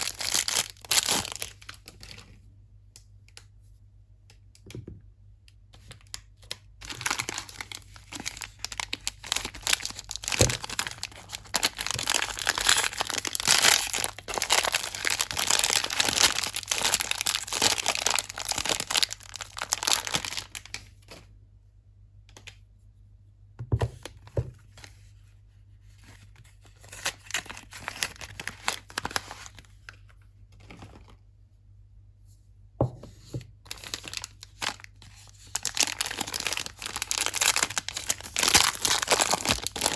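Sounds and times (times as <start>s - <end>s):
packaging tearing and crinkling: 0.0s - 2.2s, 6.5s - 20.9s, 26.8s - 29.7s, 33.7s - 39.9s
soft knocks: 32.8s - 33.2s.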